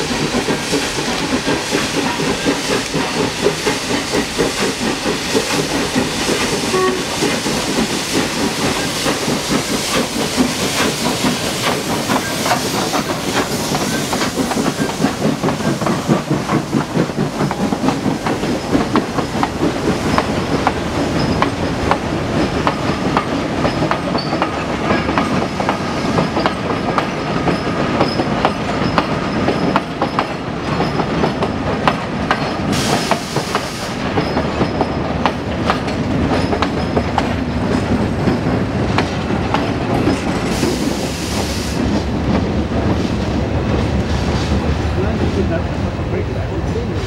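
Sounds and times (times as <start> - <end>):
wheels clattering over rail joints: 34.0 - 40.7.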